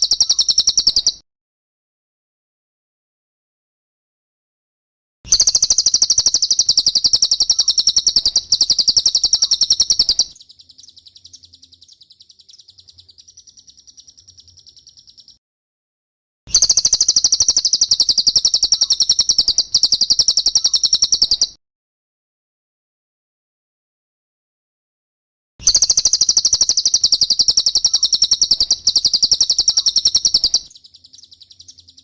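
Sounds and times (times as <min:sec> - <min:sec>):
bird high-pitched trills: 0:00.0 - 0:01.2, 0:05.3 - 0:15.4, 0:16.5 - 0:21.6, 0:25.6 - 0:32.0.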